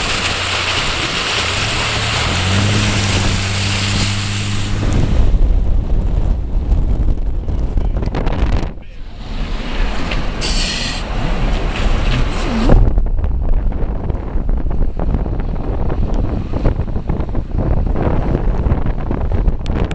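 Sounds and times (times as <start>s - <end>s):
wind buffeting microphone: 0.0s - 19.9s
short hiss: 10.0s - 11.1s.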